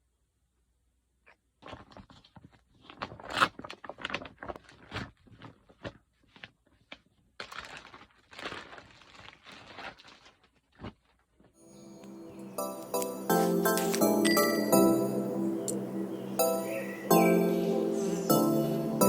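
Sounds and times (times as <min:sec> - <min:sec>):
objects rustling and clicking: 0:01.6 - 0:14.5.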